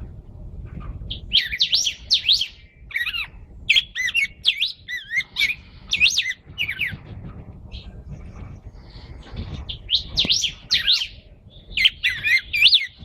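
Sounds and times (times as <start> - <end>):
songbird whistling: 1.1 - 7.0, 9.7 - 13.0.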